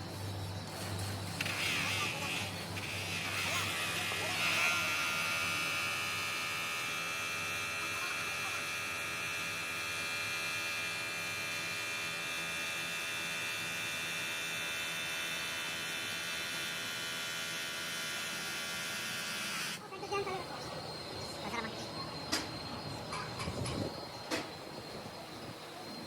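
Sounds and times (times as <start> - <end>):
electric motor whining: 1.2 - 19.8.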